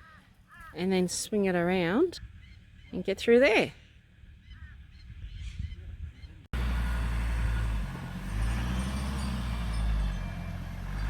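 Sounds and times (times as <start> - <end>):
low engine rumble: 2.2 - 11.0.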